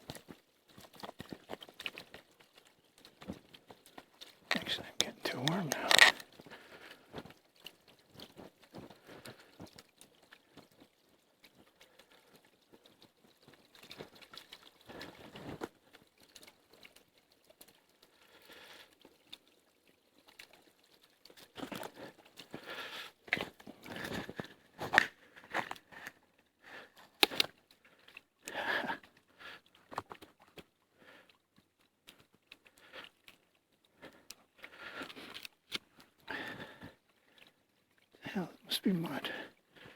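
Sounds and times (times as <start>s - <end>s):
small snaps and rustles: 0.0s - 18.2s, 18.8s - 26.2s, 27.0s - 28.6s, 31.5s - 36.2s
close-up crunching and crinkling: 0.1s - 10.0s, 18.9s - 26.3s, 27.0s - 28.0s.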